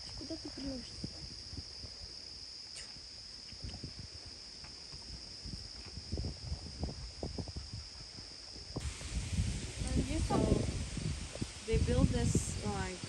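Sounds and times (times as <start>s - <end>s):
wind buffeting microphone: 0.0s - 2.2s, 3.5s - 13.0s
insects chirping: 0.0s - 13.0s.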